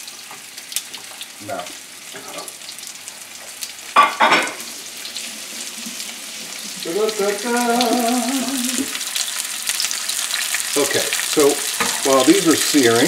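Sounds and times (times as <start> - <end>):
fish searing in a frying pan: 0.0 - 13.0
person humming: 6.7 - 9.0.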